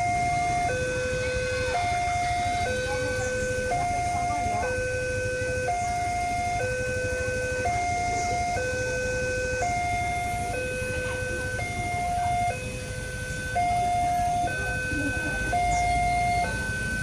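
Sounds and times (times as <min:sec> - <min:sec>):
level crossing two-tone alarm: 0:00.0 - 0:17.0
road traffic rumble: 0:00.0 - 0:17.0.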